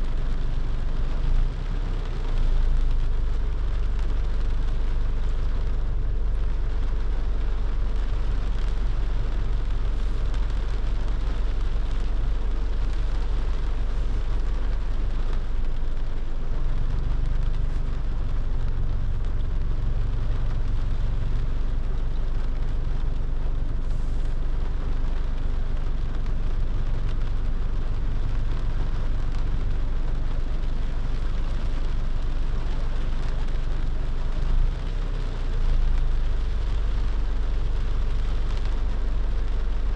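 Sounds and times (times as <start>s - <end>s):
car engine and tyres on wet road: 0.0s - 39.9s
rain hissing: 0.0s - 39.9s.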